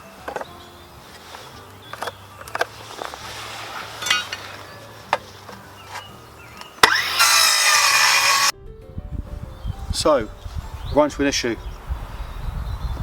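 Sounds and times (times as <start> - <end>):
circular saw cutting wood: 6.8 - 8.5.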